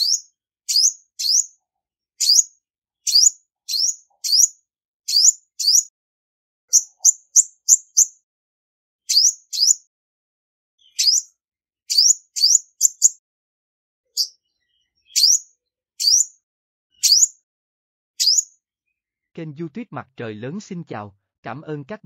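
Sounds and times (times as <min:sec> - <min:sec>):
sunbird chirping: 0:00.0 - 0:01.5, 0:02.2 - 0:02.5, 0:03.1 - 0:05.9, 0:06.7 - 0:08.2, 0:09.1 - 0:09.8, 0:10.8 - 0:11.3, 0:11.9 - 0:13.2, 0:14.1 - 0:17.4, 0:18.2 - 0:19.5.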